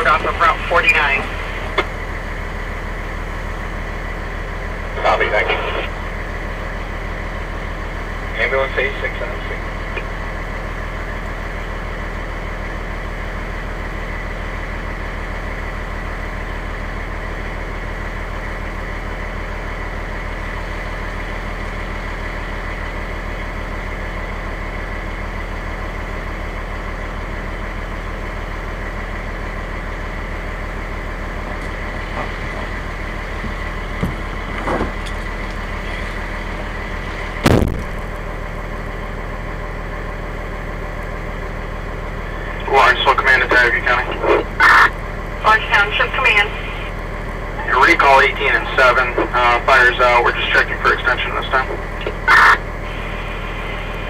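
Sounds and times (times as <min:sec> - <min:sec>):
fire engine idling: 0:00.0 - 0:54.0
sharp thump: 0:37.4 - 0:37.9.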